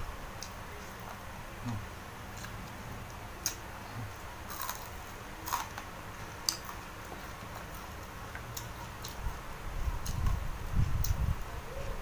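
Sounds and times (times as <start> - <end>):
person chewing food: 1.6 - 11.2.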